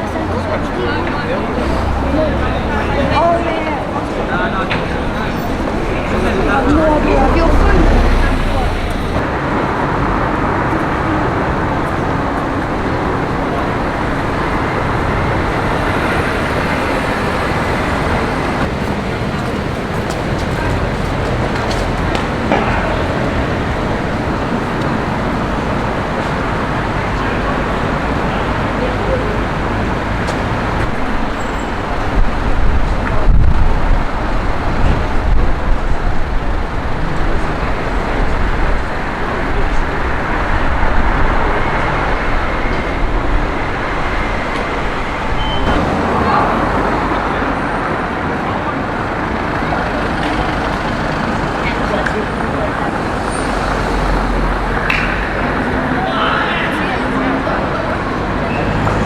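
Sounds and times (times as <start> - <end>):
passing cars rumbling: 0.0 - 59.0
road traffic noise: 0.0 - 59.0.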